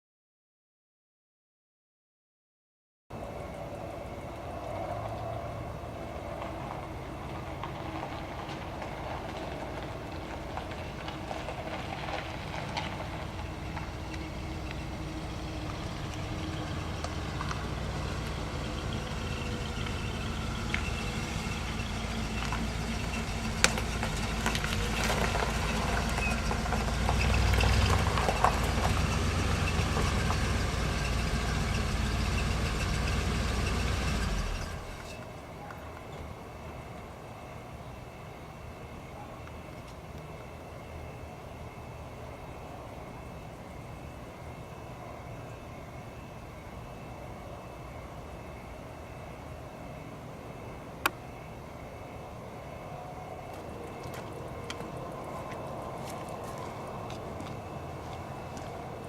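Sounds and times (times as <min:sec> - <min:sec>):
vehicle engine rumbling: 0:03.1 - 0:37.2, 0:39.4 - 0:59.0.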